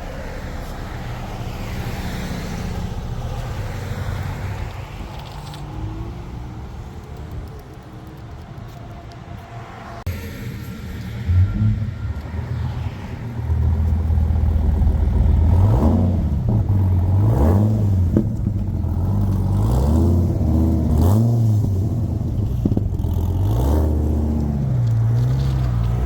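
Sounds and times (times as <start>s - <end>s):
car engine revving: 10.1s - 26.0s.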